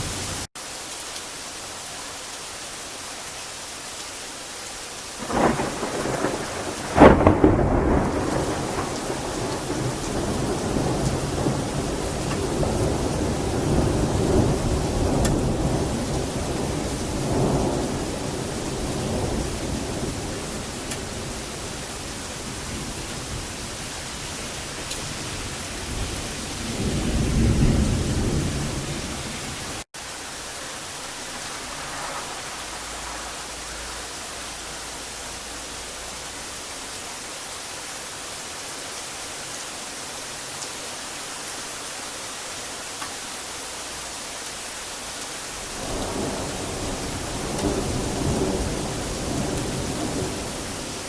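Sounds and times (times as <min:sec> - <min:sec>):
heavy rain: 0:00.0 - 0:51.0
rolling thunder: 0:05.2 - 0:29.8, 0:30.8 - 0:34.9, 0:45.6 - 0:51.0.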